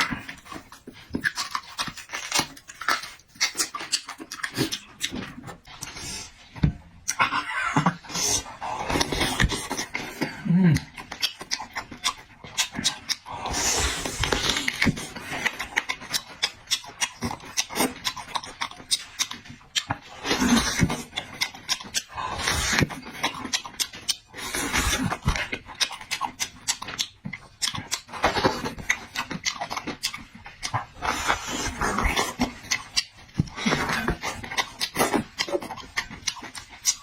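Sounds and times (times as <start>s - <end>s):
wet chewing and lip-smacking: 0.0s - 37.0s.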